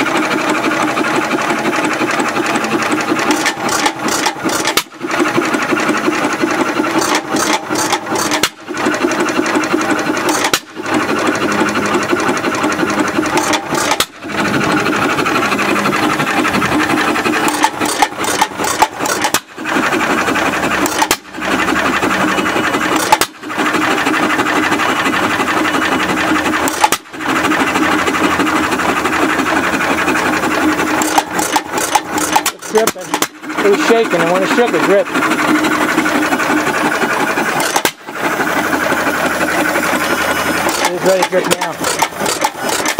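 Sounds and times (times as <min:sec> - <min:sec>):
stationary engine rattling chug: 0:00.0 - 0:42.9.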